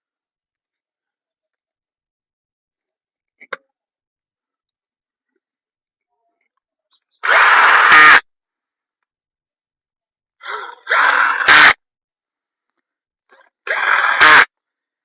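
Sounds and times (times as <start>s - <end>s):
cordless drill driving bolts: 7.2s - 8.2s, 10.9s - 11.8s, 13.7s - 14.5s.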